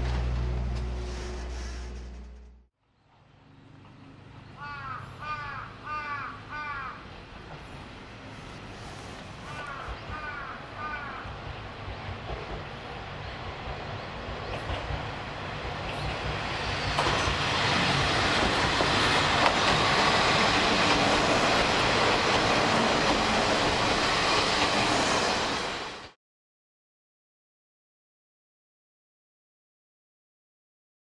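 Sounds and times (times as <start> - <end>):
diesel railcar passing: 0.0 - 26.2
crow cawing: 4.6 - 7.0, 9.5 - 11.4.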